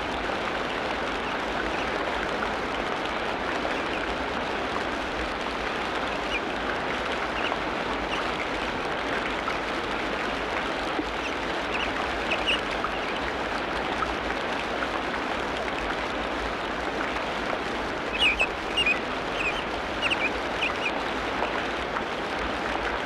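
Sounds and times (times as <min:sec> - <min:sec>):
dense hiss of running water: 0:00.0 - 0:23.0
high chirps: 0:18.2 - 0:20.9.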